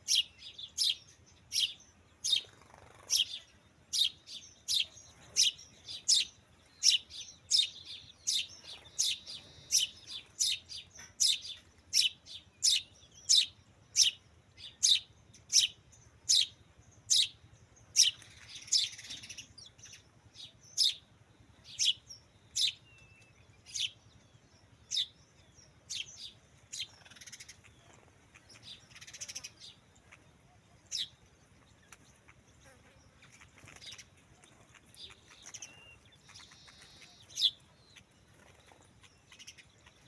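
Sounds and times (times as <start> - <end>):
bird chirping: 0.0 - 40.0
rustle: 0.0 - 40.0.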